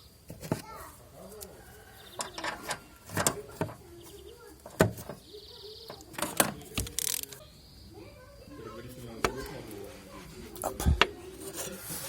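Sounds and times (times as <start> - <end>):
ratchet whirring: 6.8 - 7.4.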